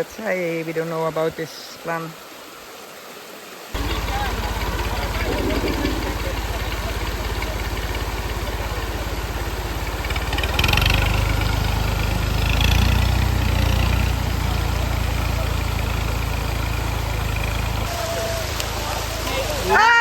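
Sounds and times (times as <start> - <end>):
vehicle engine revving: 3.8 - 19.7.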